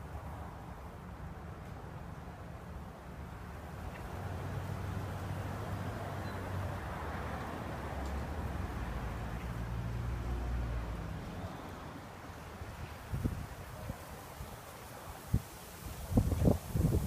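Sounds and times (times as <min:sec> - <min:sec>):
breeze rustling: 0:10.9 - 0:17.0.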